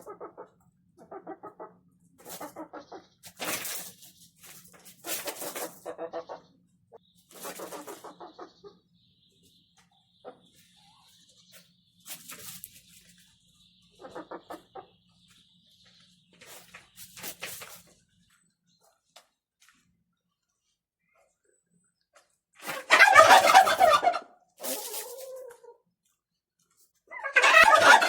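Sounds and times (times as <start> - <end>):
chickens clucking: 0.0 - 3.8, 5.0 - 17.7, 22.6 - 25.8, 27.1 - 28.0.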